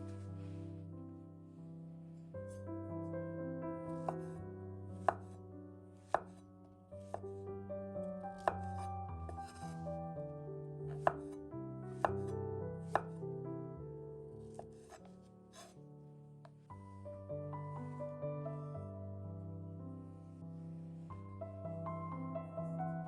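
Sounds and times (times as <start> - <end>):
soft piano music: 0.0 - 23.0
knife chopping on cutting board: 5.0 - 5.3, 6.1 - 6.4, 8.4 - 9.7, 10.9 - 11.4, 12.0 - 12.3, 12.9 - 13.2, 14.5 - 15.0.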